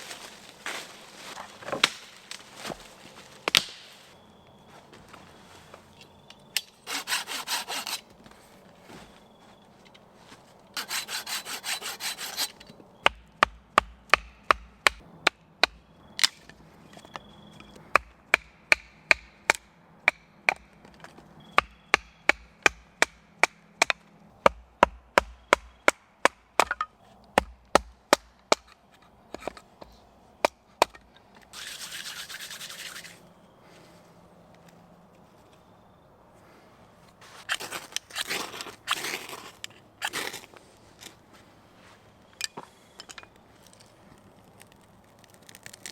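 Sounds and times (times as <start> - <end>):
hand sawing wood: 6.8 - 8.1, 10.8 - 12.6, 31.5 - 33.2.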